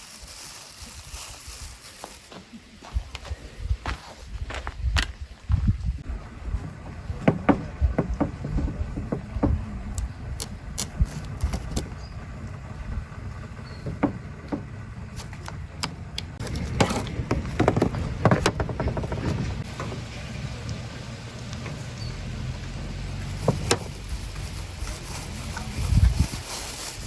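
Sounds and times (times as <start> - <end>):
steady low rumble: 2.8 - 27.0
knocks and clicks: 7.2 - 12.0, 13.5 - 20.0.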